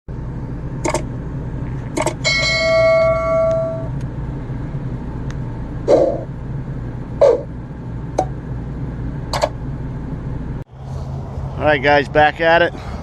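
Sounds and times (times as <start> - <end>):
steady low hum: 0.1 - 13.0
metallic ringing tone: 2.2 - 4.0.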